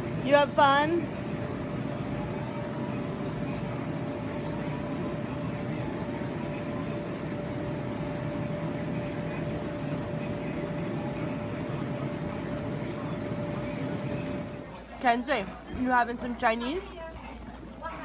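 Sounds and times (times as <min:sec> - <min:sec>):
mid-pitched hum: 0:00.0 - 0:18.0.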